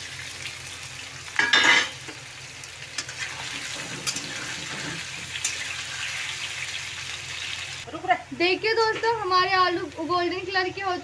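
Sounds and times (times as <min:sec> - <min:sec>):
potatoes sizzling in oil: 0:00.0 - 0:07.9.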